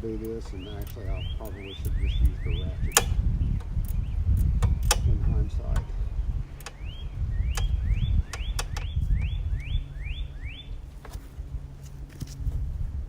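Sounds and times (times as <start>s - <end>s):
low rumble: 0.0s - 13.0s
sharp clicks: 0.2s - 5.9s, 6.6s - 9.3s
bird calling rising notes: 0.5s - 10.9s.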